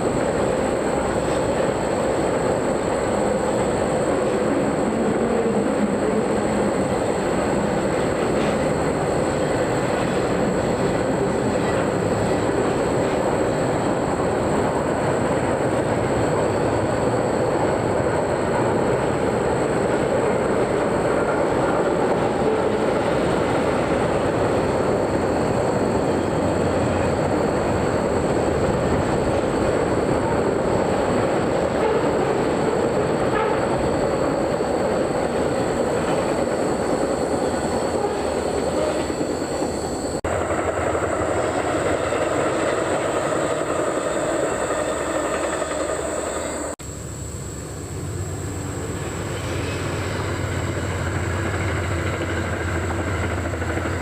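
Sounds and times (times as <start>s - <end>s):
train cars rolling on rails: 0.0s - 46.8s, 47.4s - 54.0s.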